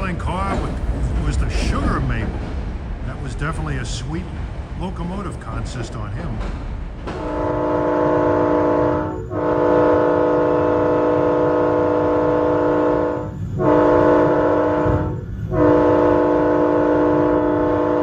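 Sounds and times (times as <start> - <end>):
locomotive air horn blasts: 7.2 - 18.0.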